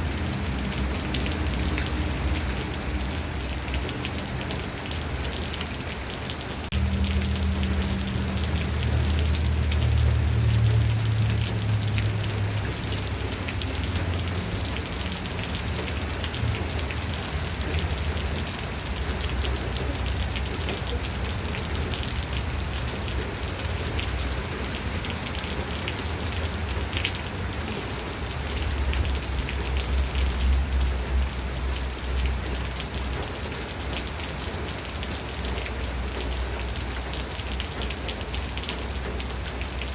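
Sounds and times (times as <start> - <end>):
steady rain falling: 0.0 - 39.9
low rumble: 6.7 - 14.6.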